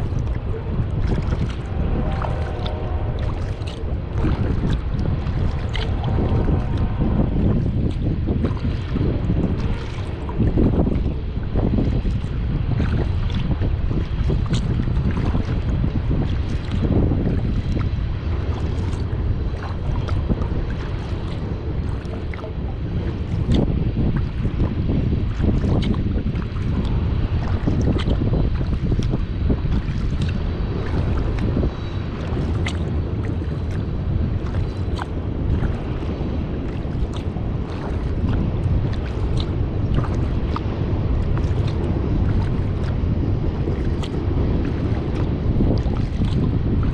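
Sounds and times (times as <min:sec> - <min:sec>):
kayak paddle splashes and drips: 0:00.0 - 0:46.9
wind buffeting microphone: 0:00.0 - 0:46.9.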